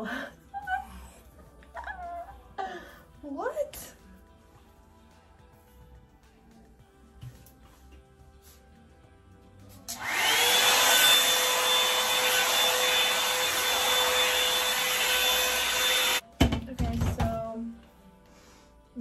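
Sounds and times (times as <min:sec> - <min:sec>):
hair dryer running: 0:09.9 - 0:16.2.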